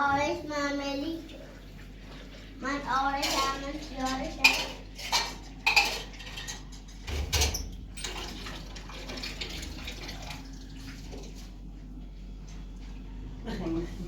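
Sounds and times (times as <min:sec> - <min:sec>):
knocks and clatters of objects: 0:03.2 - 0:09.8.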